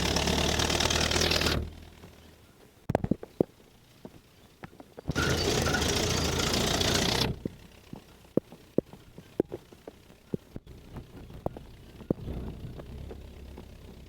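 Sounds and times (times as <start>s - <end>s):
faint low rumble: 7.3s - 14.0s
jeep engine and wind rush: 10.7s - 14.0s.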